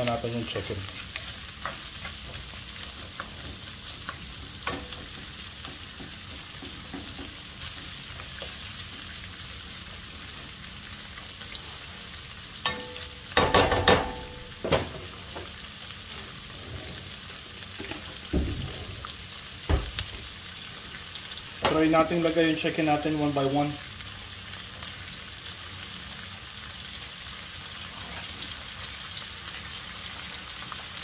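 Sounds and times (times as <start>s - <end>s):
onion sizzling in hot oil: 0.0s - 31.0s
utensil clanking against pan: 12.6s - 15.0s.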